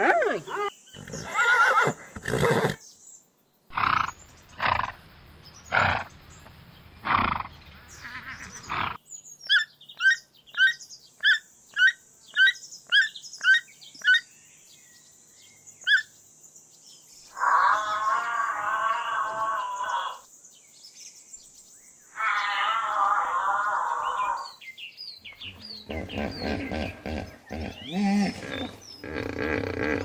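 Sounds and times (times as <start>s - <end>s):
horse whinnying: 0.0s - 2.8s, 25.4s - 30.0s
horse snorting: 0.6s - 2.8s, 3.7s - 5.0s, 5.7s - 6.2s, 7.0s - 7.6s, 8.5s - 9.0s, 25.3s - 30.0s
toucan calling: 7.1s - 14.2s, 15.9s - 16.1s, 25.2s - 30.0s.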